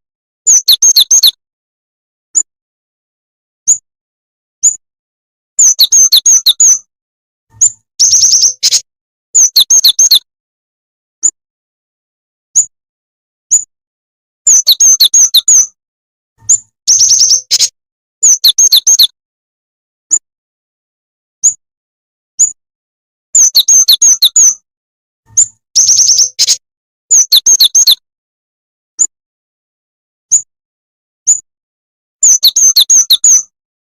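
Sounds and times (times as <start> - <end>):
high bird chirps and trills: 0.5 - 1.4, 3.6 - 3.8, 4.6 - 4.8, 5.6 - 6.9, 7.5 - 10.3, 12.5 - 12.7, 13.5 - 13.7, 14.5 - 15.8, 16.4 - 19.2, 21.4 - 21.6, 22.4 - 22.6, 23.4 - 24.6, 25.3 - 28.0, 30.3 - 30.5, 31.2 - 31.5, 32.2 - 33.5.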